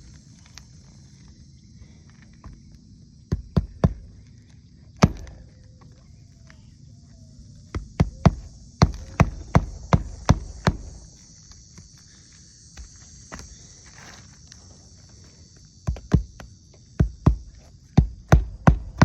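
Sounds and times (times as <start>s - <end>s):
sharp knocks on a shingle roof: 3.3s - 4.2s, 5.0s - 5.5s, 7.7s - 11.0s, 15.8s - 19.0s.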